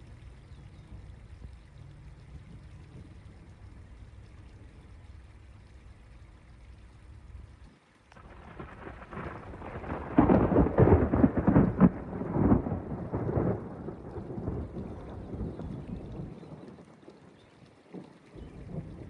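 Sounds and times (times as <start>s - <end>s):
thunder rumbling and crackling: 8.2s - 16.8s, 18.4s - 19.0s.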